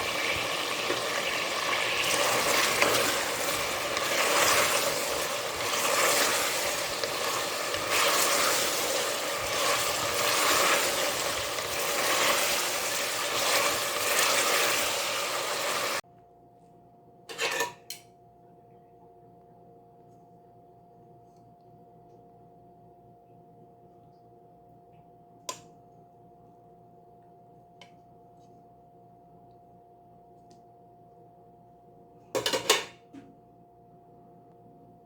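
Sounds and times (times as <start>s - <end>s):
meat sizzling in a pan: 0.0s - 16.0s.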